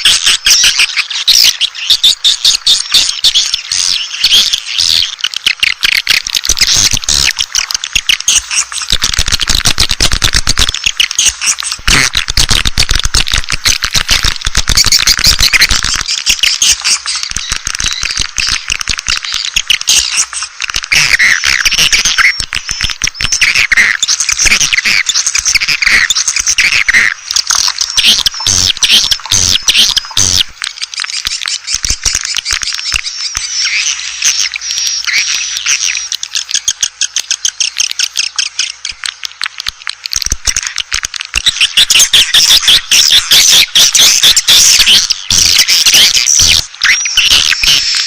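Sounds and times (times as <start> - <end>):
swiftlets twittering: 0.0 - 48.0
fast rattling clicks: 5.2 - 33.5.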